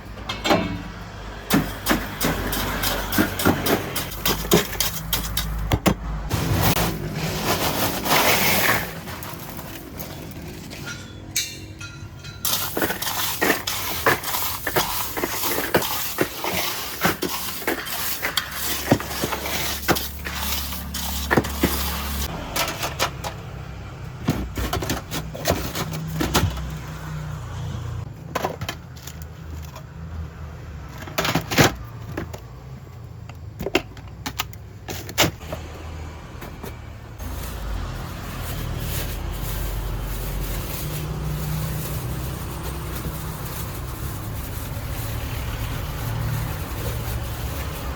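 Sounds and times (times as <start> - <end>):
metal cooking utensils clanking: 0.0 - 5.7, 6.4 - 23.6
low traffic rumble: 0.0 - 47.9.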